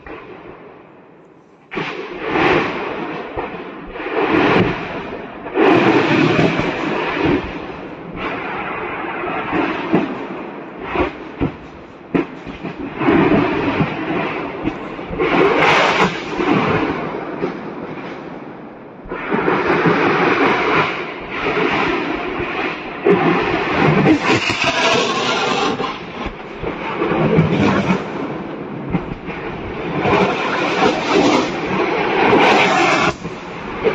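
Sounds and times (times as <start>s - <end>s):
fire crackling rush: 1.6s - 33.9s.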